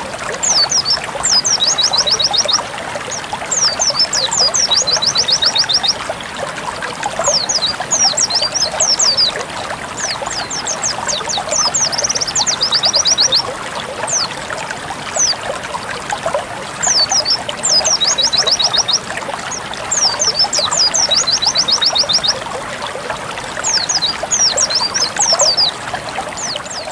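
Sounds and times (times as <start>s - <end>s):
trickling water: 0.0s - 26.9s
bird chirps and trills: 0.4s - 6.0s, 7.2s - 9.4s, 10.0s - 13.5s, 15.2s - 15.4s, 16.8s - 22.4s, 23.6s - 25.8s, 26.4s - 26.9s.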